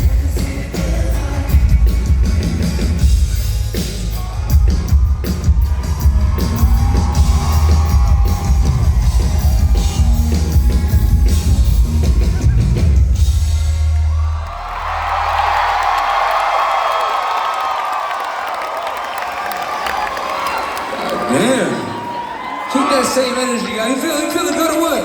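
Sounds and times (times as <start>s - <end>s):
live rock band playing: 0.0s - 14.1s
pounding drums: 0.0s - 15.6s.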